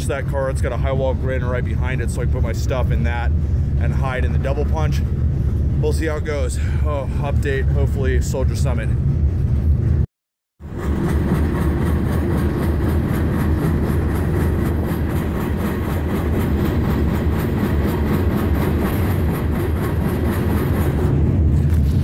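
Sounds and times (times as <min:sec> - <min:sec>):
freight train rumbling: 0:00.0 - 0:22.0
wheels clattering on rails: 0:10.6 - 0:22.0.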